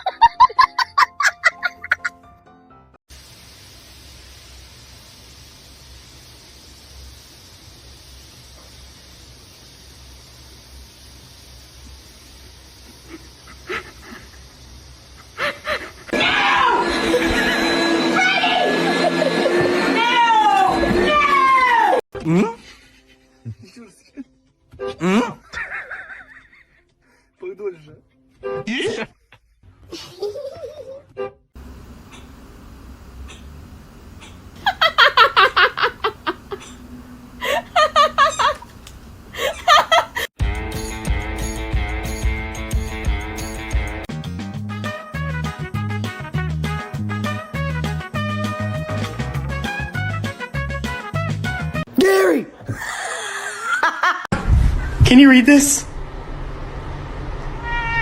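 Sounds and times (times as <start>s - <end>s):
faint hiss: 3.1s - 16.1s, 31.6s - 40.3s
loud busy sound: 16.2s - 21.4s
person giggling: 28.8s - 31.0s, 34.2s - 40.3s, 52.7s - 54.3s
squeaky animal cries: 57.6s - 58.0s.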